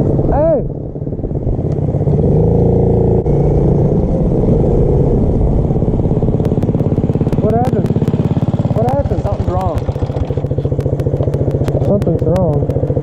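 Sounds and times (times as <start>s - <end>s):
small motorbike engine running: 0.0s - 13.0s.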